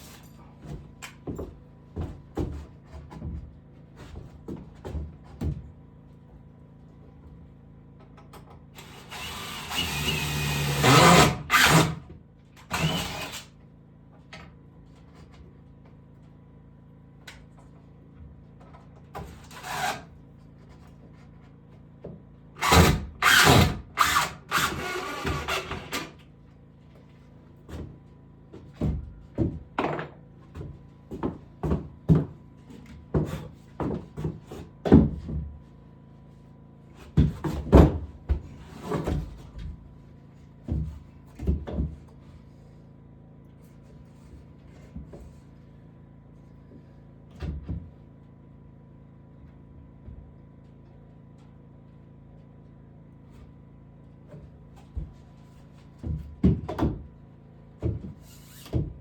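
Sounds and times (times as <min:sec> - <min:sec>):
knocks of wood and tools: 0:00.5 - 0:05.8, 0:26.9 - 0:35.7, 0:37.0 - 0:40.0, 0:40.6 - 0:42.2, 0:46.7 - 0:48.1, 0:54.3 - 0:57.2, 0:57.8 - 0:59.0
power drill running: 0:08.8 - 0:12.0, 0:12.7 - 0:13.5, 0:22.6 - 0:26.1
bursts of tool work: 0:08.8 - 0:13.6, 0:19.2 - 0:20.1, 0:22.6 - 0:26.2.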